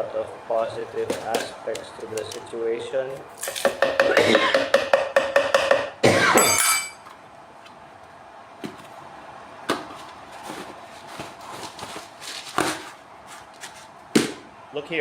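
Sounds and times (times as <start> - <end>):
loud rattling clink: 6.4 - 7.0
small hard parts clinking: 6.4 - 7.1.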